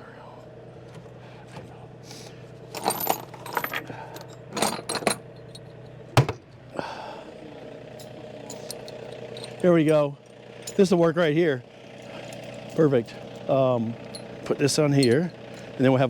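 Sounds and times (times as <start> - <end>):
engine idling: 0.0 - 16.0
chain clinking and rattling: 2.6 - 6.1, 7.9 - 11.1, 12.0 - 16.0.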